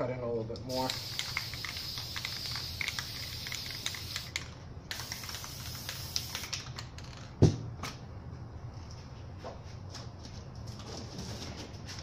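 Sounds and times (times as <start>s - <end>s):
spray paint hiss: 0.7s - 6.6s.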